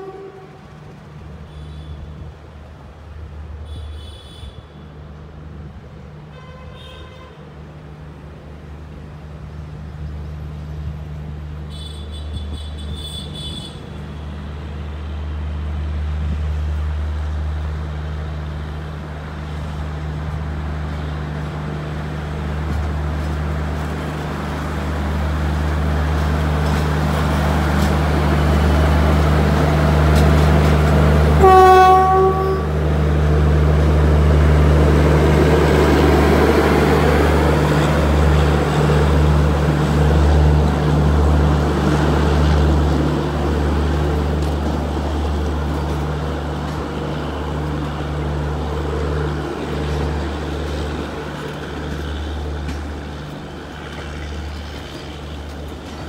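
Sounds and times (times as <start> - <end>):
train horn blast: 0.0 - 0.9, 3.6 - 4.9, 6.3 - 7.5, 11.7 - 14.0, 31.3 - 32.8
locomotive low hum: 7.6 - 56.0.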